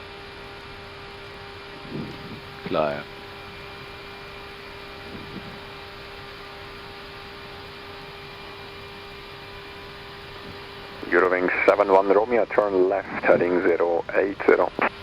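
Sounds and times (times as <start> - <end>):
constant hum: 0.0 - 15.0
rush of air in cockpit: 1.8 - 3.3, 4.7 - 6.6.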